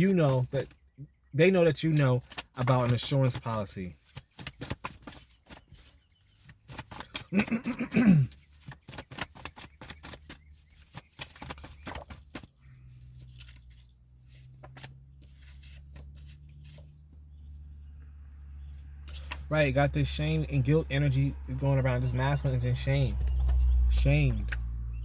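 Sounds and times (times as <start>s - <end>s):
cards shuffling: 1.9s - 7.3s, 8.3s - 17.2s, 19.0s - 19.5s, 23.1s - 24.7s.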